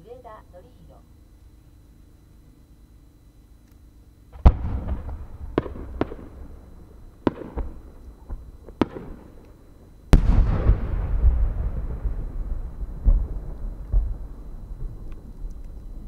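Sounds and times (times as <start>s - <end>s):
sharp firework pops: 4.3s - 6.4s, 7.2s - 9.5s, 10.1s - 11.9s, 13.0s - 14.2s
deep rumbling boom: 10.2s - 15.1s.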